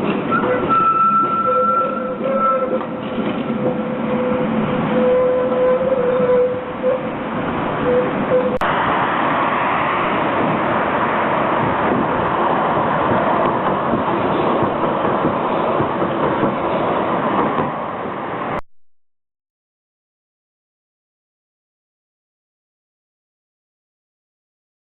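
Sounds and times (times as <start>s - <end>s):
tram wheels on rails: 0.0s - 18.6s.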